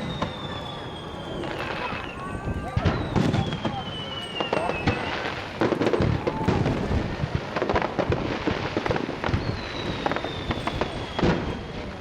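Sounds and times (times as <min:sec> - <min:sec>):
firework shell bursts and crackles: 0:00.0 - 0:12.0.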